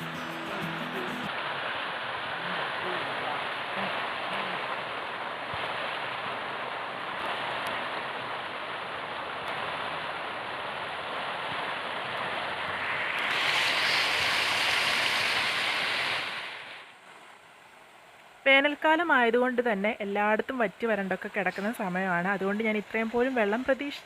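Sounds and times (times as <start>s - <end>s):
waterfall water rushing: 0.0s - 16.9s.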